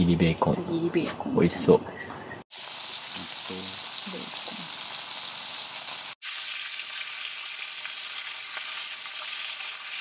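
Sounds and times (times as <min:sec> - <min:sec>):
food sizzling in frying pan: 0:02.5 - 0:10.0.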